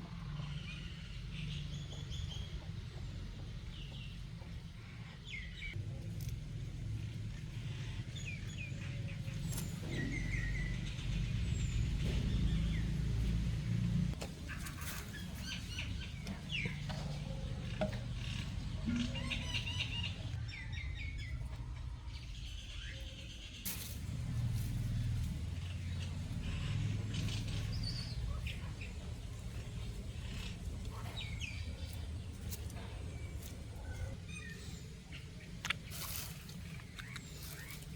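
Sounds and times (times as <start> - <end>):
small birds chirping: 0.1 - 37.9
steady low rumble: 23.7 - 37.9.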